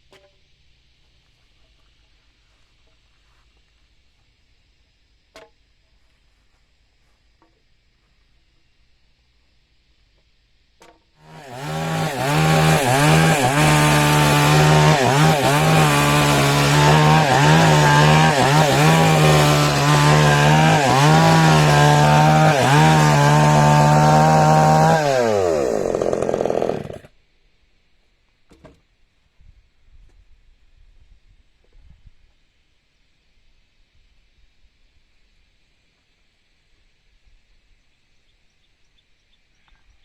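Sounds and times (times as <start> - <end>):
power tool cutting wood: 11.2 - 27.1.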